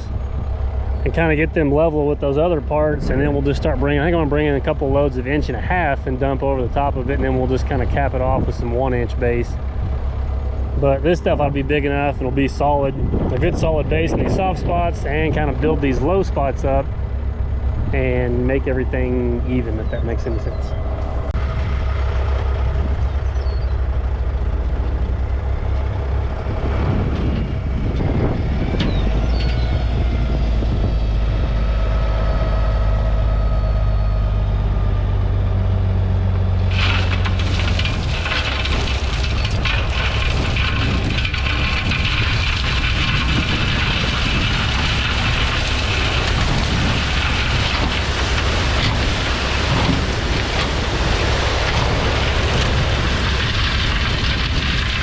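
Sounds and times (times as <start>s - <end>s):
truck engine revving: 0.0s - 55.0s
rocks sliding out of truck bed: 36.6s - 55.0s.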